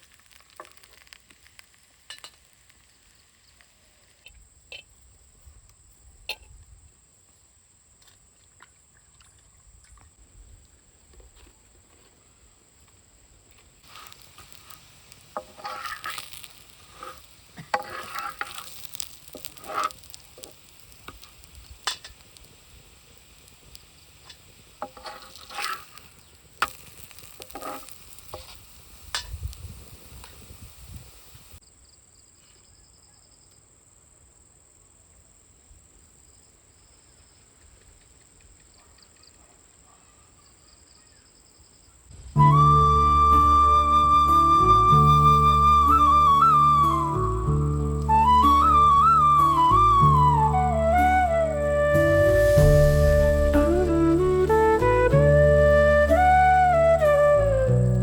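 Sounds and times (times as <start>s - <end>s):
food sizzling on a hot pan: 0.0s - 4.4s, 13.5s - 31.6s, 42.1s - 58.0s
spatula scrapes and clicks: 15.4s - 21.2s, 24.8s - 28.6s.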